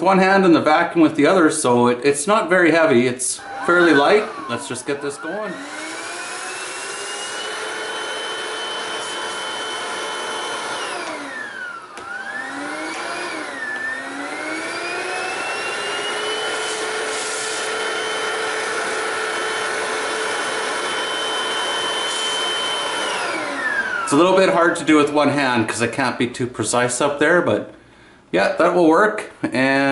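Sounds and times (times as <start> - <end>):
stick vacuum motor whine: 2.6 - 25.4.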